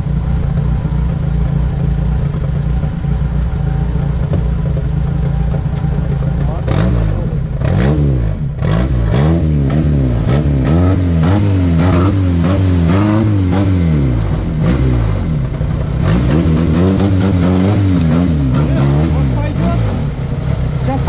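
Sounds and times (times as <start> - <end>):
engine revving up and down: 5.5 - 21.0.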